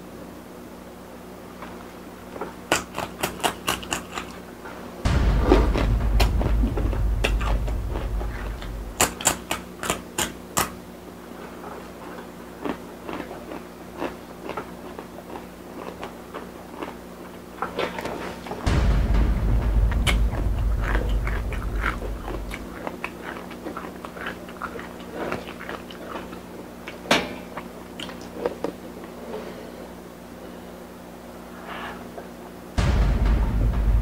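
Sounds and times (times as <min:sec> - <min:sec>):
tortilla chip crunching: 0:02.4 - 0:04.4, 0:09.0 - 0:10.8, 0:11.7 - 0:18.2, 0:21.1 - 0:28.8
loud low rumble: 0:05.0 - 0:09.2, 0:18.6 - 0:23.4, 0:32.8 - 0:34.0.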